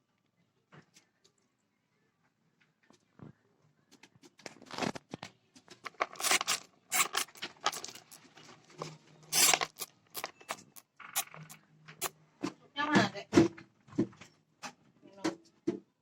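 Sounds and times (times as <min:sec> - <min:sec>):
scratching and crinkling: 0:05.7 - 0:08.4, 0:09.4 - 0:11.6.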